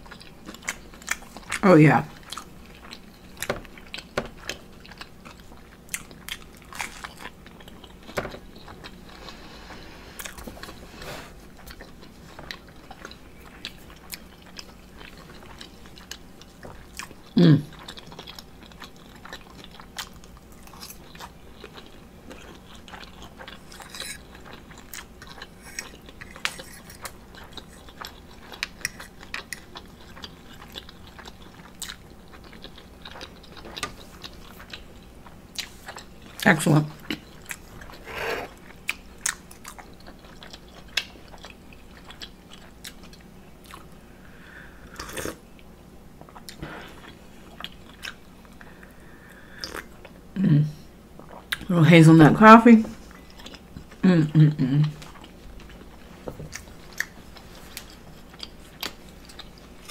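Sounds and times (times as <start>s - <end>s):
close chewing with mouth clicks: 0.0s - 44.0s, 44.7s - 50.2s, 53.0s - 54.0s, 54.8s - 59.9s.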